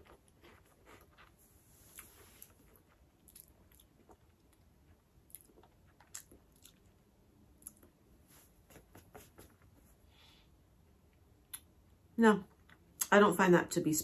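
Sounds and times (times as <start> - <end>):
person chewing crunchy snack: 0.0 - 7.0.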